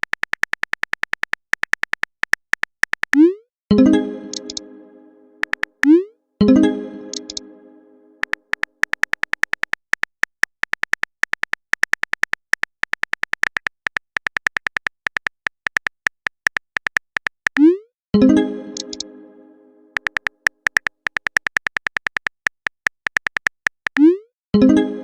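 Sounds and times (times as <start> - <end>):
phone keyboard typing clicks: 0.0 - 3.4, 4.3 - 4.6, 5.4 - 6.0, 7.1 - 7.5, 8.2 - 17.8, 18.8 - 19.1, 19.9 - 24.2
message sent notification chime: 3.7 - 8.2.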